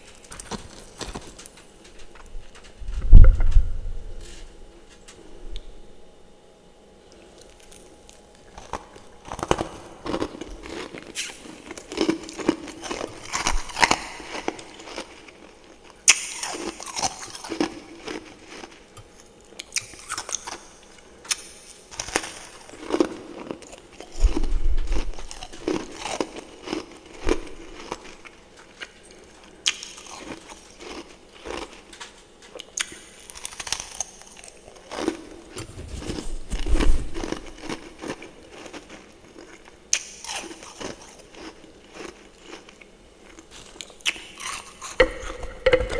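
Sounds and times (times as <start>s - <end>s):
person crunching ice: 8.6s - 15.5s.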